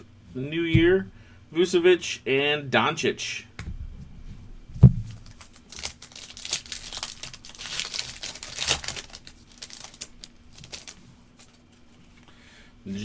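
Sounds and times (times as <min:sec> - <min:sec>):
foil wrapper crinkling and tearing: 0:05.1 - 0:11.9.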